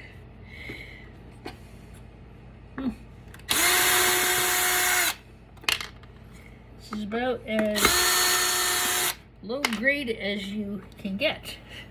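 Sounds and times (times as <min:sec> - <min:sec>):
power drill spinning: 0:03.5 - 0:05.2, 0:07.7 - 0:09.2.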